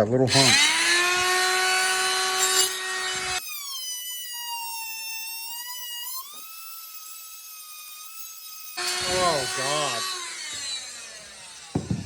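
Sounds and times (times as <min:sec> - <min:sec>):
grinding noise: 0:00.2 - 0:03.4, 0:08.8 - 0:12.0
power tool motor whining: 0:00.3 - 0:12.0.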